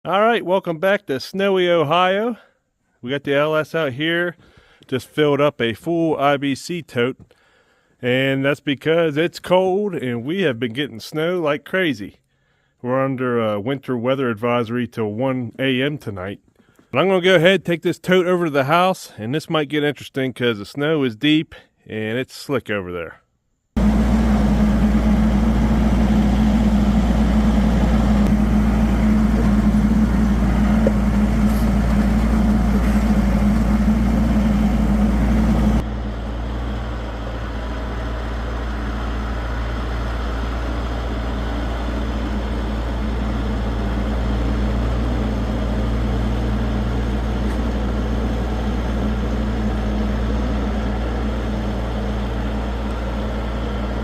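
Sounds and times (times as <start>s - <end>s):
tractor diesel engine running: 23.8s - 54.0s.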